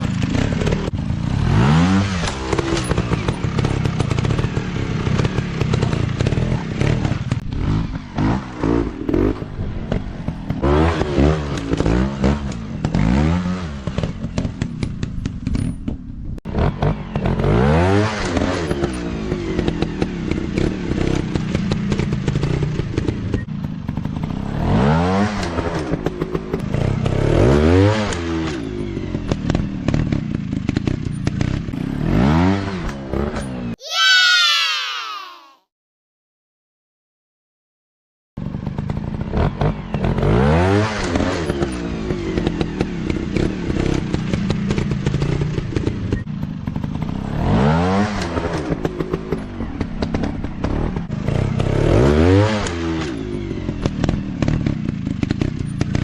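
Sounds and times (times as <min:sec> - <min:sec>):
dirt bike engines revving: 0:00.0 - 0:14.5.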